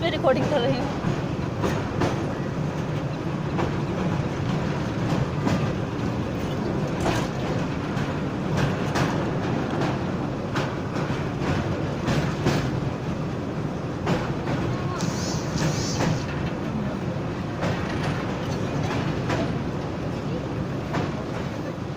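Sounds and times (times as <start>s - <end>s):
train rumbling on board: 0.0s - 21.9s
wheels clicking over rail joints: 0.0s - 21.9s.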